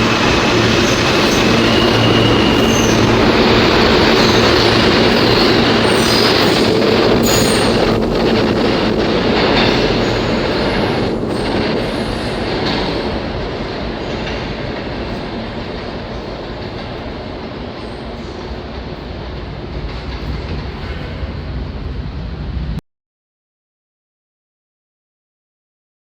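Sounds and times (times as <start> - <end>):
high wheel squeal: 0.0 - 15.4
subway train rumbling: 0.0 - 22.8.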